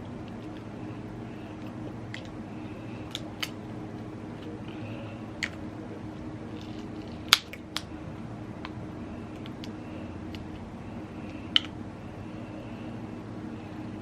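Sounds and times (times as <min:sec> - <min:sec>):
steady low hum: 0:00.0 - 0:14.0
crab shells cracking: 0:01.4 - 0:05.7, 0:06.5 - 0:08.0, 0:08.6 - 0:10.7.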